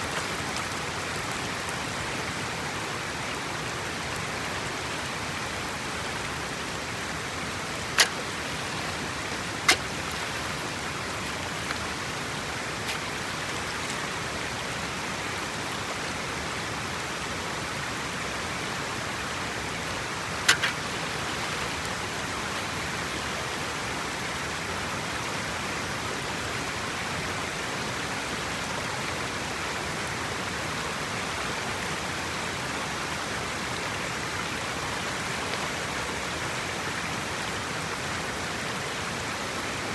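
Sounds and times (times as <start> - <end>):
water rushing: 0.0 - 15.9, 18.0 - 24.6
sharp clicks or knocks: 8.0 - 8.3, 20.5 - 20.8.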